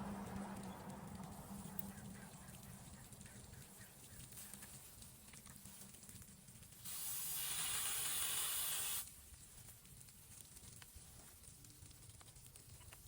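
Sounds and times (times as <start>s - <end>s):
faint low rumble: 0.0s - 6.8s
steady hiss: 4.2s - 11.4s.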